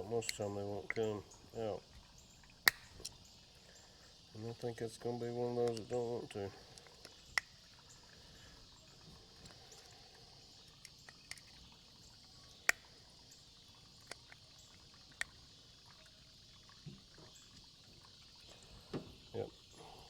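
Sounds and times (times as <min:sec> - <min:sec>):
insect chirring: 0:00.0 - 0:20.0
faint metal tool clicks: 0:02.7 - 0:03.2.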